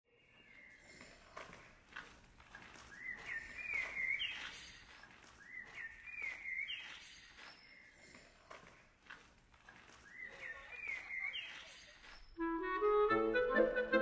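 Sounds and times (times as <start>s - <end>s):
songbird singing: 0.1s - 8.7s, 9.7s - 12.5s
faint background noise: 0.1s - 14.0s.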